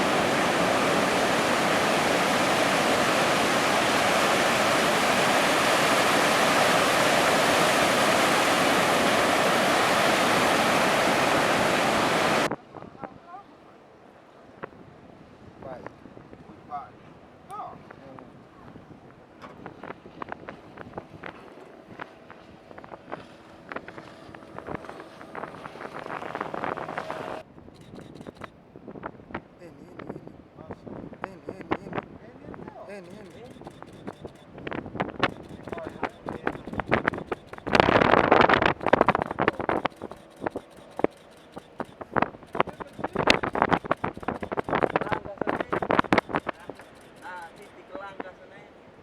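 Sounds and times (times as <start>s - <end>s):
ocean surf breaking: 0.0s - 12.5s, 24.2s - 27.4s, 35.2s - 49.0s
wind buffeting microphone: 0.0s - 13.3s, 14.6s - 48.4s
faint steady hum: 0.0s - 16.2s.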